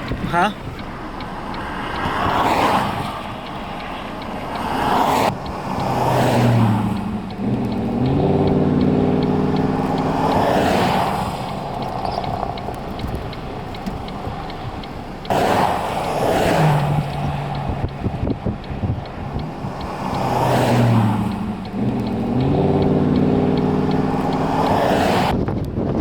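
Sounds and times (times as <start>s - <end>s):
vehicle engine humming: 0.0s - 25.4s
vehicles passing on road: 0.0s - 26.0s.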